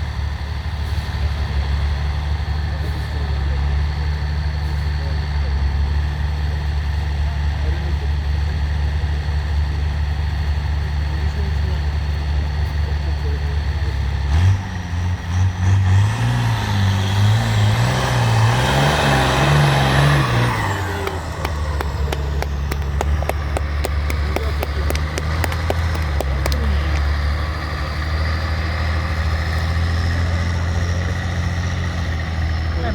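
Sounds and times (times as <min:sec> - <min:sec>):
truck engine revving: 0:00.0 - 0:32.9
sharp clicks: 0:20.4 - 0:27.2.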